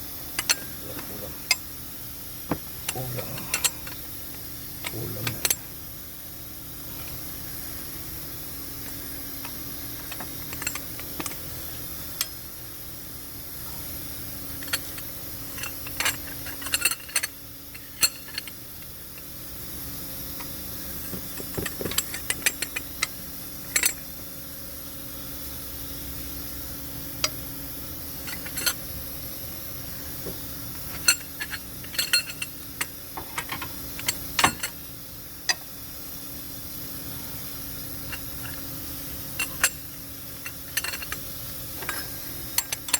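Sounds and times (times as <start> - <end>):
steady hum: 0.0 - 42.9
metal hand tools clinking: 28.2 - 28.8, 30.9 - 34.8, 39.3 - 42.9.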